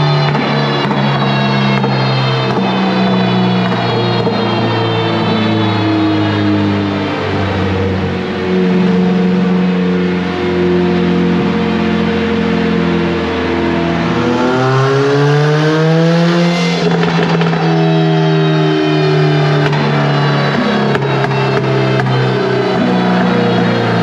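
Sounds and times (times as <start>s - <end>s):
car engine running under load: 0.0s - 24.0s
engine rush of noise: 0.0s - 24.0s.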